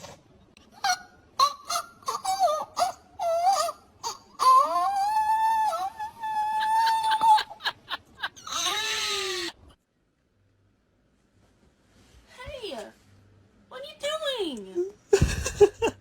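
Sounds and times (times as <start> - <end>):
animal wailing call: 0.8 - 7.7.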